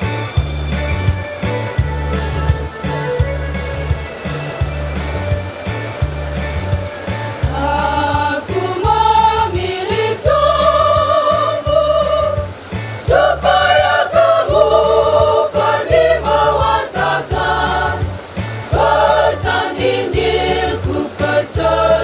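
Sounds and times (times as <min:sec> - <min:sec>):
choir singing: 0:07.5 - 0:22.0.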